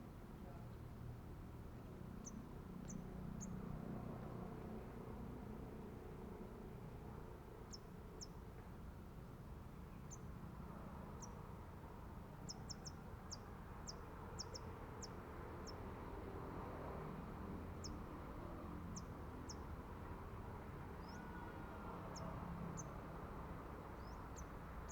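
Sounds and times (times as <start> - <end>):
small bird high call notes: 21.0 - 22.9.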